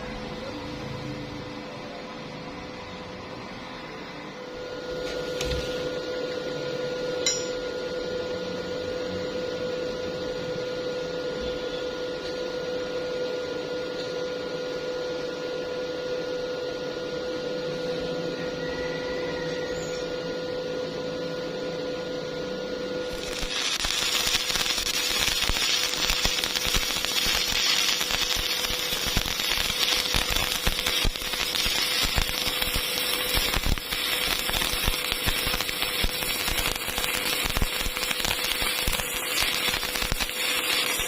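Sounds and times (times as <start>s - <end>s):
steady machine hum: 0.0s - 41.0s
harsh hiss: 23.0s - 41.0s.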